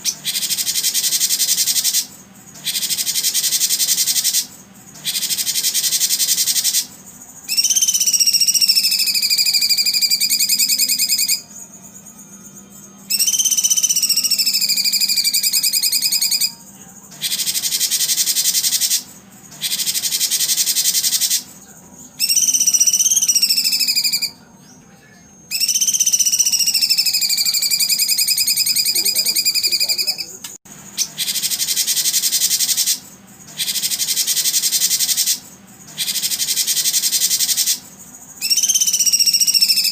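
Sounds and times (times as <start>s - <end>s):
high buzzing trills: 0.0s - 39.9s
long whistled calls sliding down: 7.5s - 11.4s, 13.1s - 16.6s, 22.2s - 24.3s, 25.5s - 30.3s, 38.4s - 39.9s.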